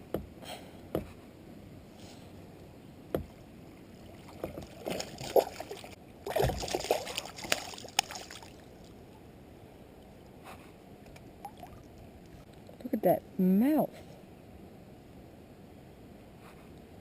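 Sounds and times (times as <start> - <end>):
knocks against kayak hull: 3.1 - 3.3
water splashing at a kayak: 3.1 - 9.0.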